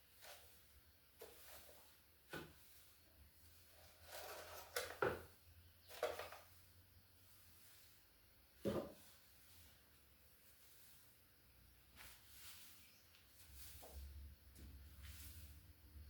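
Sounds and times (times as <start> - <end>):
kitchen things knocking and clattering: 4.1 - 5.3.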